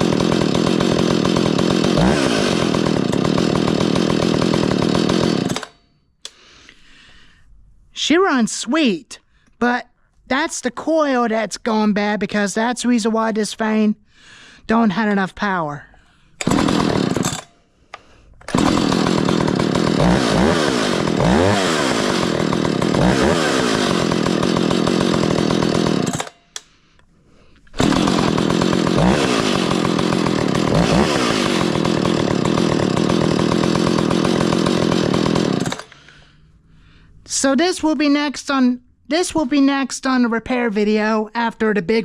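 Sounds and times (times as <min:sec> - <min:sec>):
chainsaw revving: 0:00.0 - 0:05.8, 0:16.4 - 0:17.6, 0:18.4 - 0:26.4, 0:27.7 - 0:36.3.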